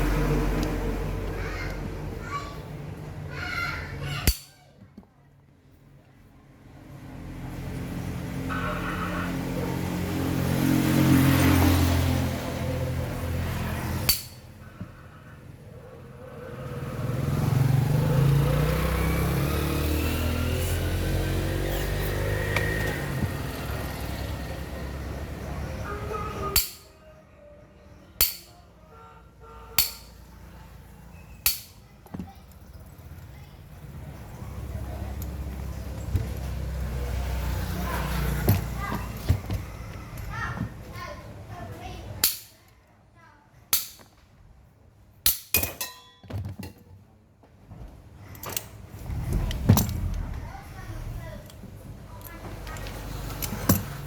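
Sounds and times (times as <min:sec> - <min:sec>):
hammer striking metal: 0:04.2 - 0:04.6, 0:14.0 - 0:14.5, 0:26.5 - 0:27.0, 0:28.2 - 0:28.6, 0:29.8 - 0:30.3, 0:31.4 - 0:31.8
steady low noise: 0:48.9 - 0:51.9.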